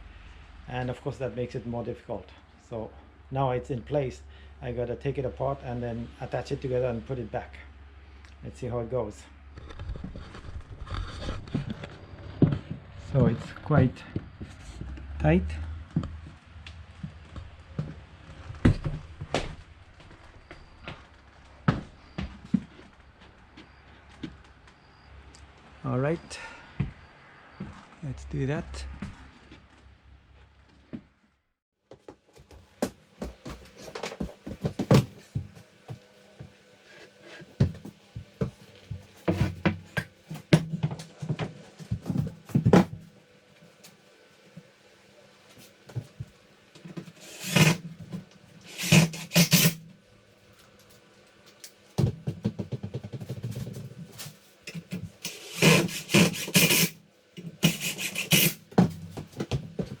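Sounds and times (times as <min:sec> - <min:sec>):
wood rasping scrapes: 0:47.1 - 0:47.9, 0:48.6 - 0:49.8, 0:54.7 - 0:58.9.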